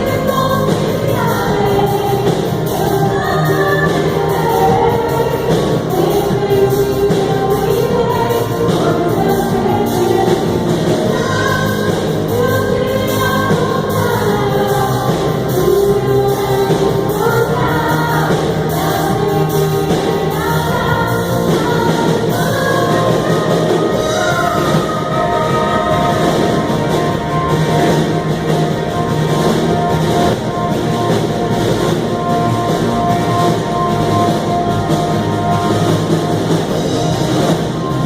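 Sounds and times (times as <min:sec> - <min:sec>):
instrumental accompaniment: 0:00.0 - 0:38.0
voices singing worship song: 0:00.0 - 0:38.0.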